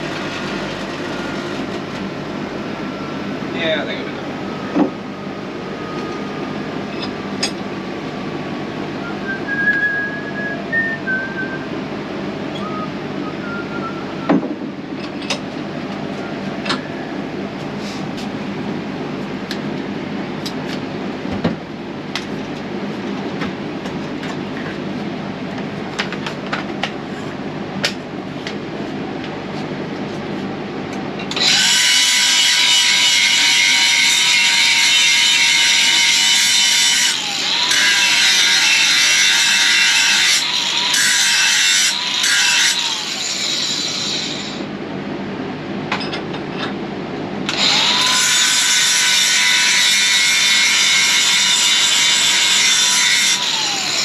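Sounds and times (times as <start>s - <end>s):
steady shop hum: 0.0s - 54.0s
handheld grinder whining: 31.3s - 44.7s, 47.5s - 54.0s.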